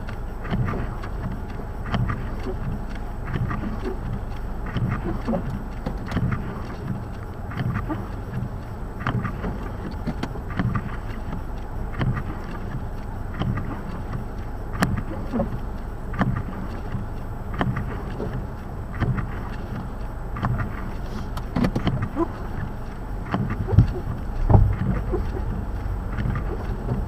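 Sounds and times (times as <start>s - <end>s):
wind buffeting microphone: 21.8s - 27.0s
soft thumps: 23.3s - 27.0s.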